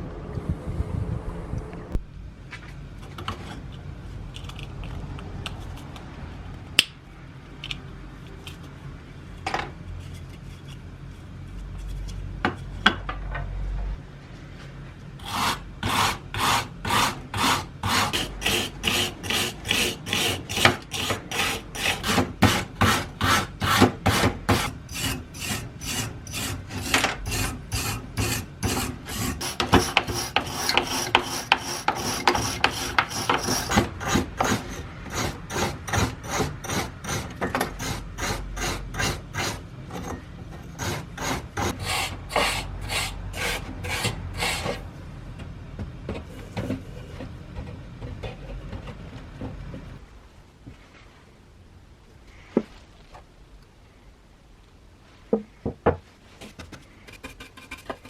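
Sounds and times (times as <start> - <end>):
abrasive rasping on rusty steel: 15.2 - 44.9.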